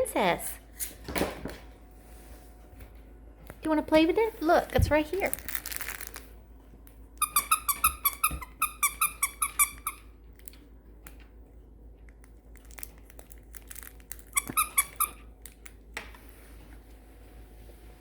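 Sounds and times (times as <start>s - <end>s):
squeaky dog toy squeaking: 7.2s - 10.1s, 14.3s - 15.3s.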